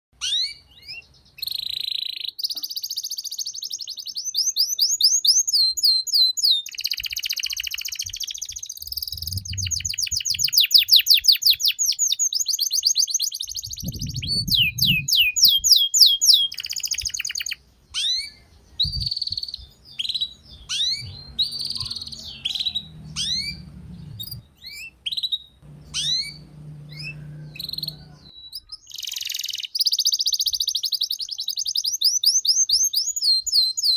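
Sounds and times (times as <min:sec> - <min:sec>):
canary singing trills: 0:00.2 - 0:33.9
faint low hum: 0:18.4 - 0:28.3.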